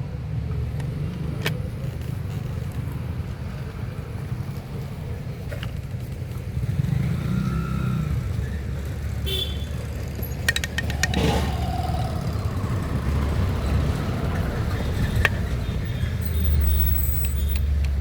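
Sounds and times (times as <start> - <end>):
road traffic rumble: 0.0 - 18.0
vehicle horn toot: 9.2 - 9.8
sharp clicks: 10.4 - 12.0.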